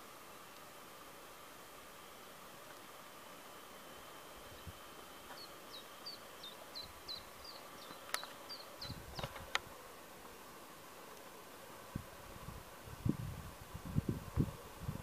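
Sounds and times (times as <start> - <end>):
small songbird singing: 4.4 - 9.6.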